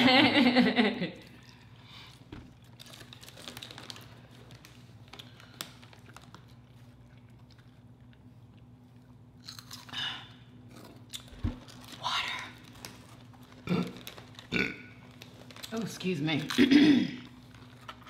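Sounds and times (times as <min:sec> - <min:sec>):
chips crunching while chewing: 0:02.5 - 0:15.8.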